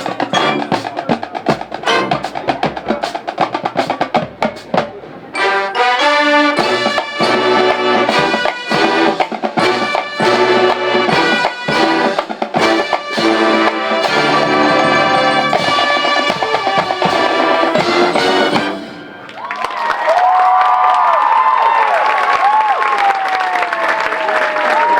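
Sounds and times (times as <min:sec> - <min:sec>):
marching band playing: 0:00.0 - 0:19.6.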